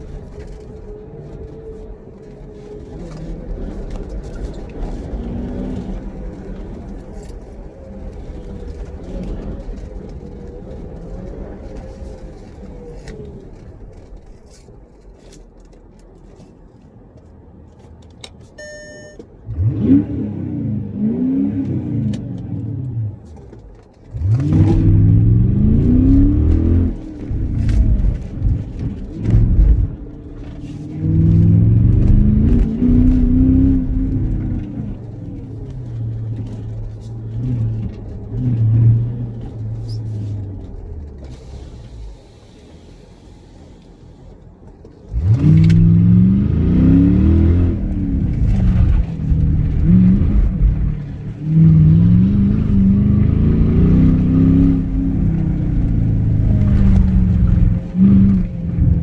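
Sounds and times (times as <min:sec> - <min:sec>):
car engine revving: 0:18.6 - 0:43.0, 0:45.0 - 0:59.0.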